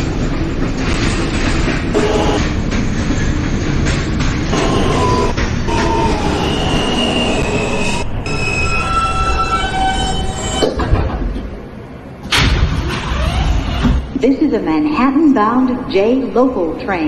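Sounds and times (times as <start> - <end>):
subway train rumbling over rails: 0.0 - 17.0
wheels and brakes squealing: 5.0 - 10.6.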